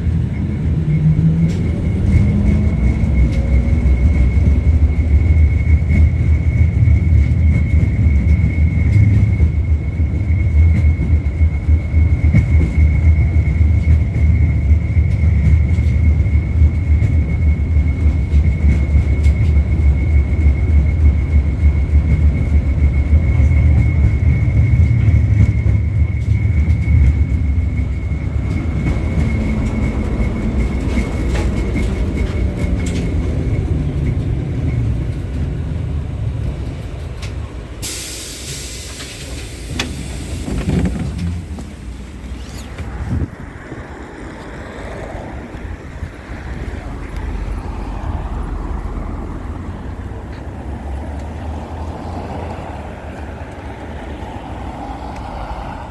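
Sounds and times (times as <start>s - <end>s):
tram wheels rumbling on rail: 0.0s - 55.9s.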